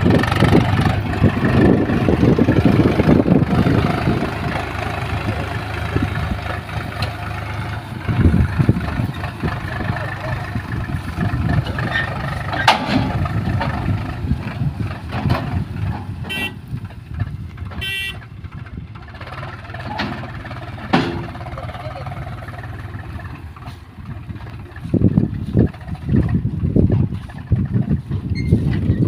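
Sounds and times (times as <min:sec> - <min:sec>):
diesel engine running: 0:00.0 - 0:29.0
short horn beeps: 0:16.3 - 0:16.6, 0:17.8 - 0:18.2.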